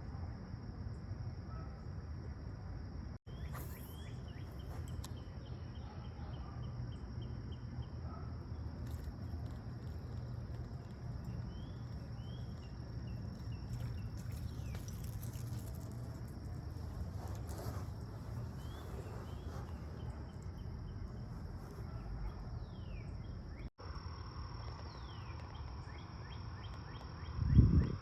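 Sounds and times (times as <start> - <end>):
quick repeated high chirps: 3.3 - 5.3.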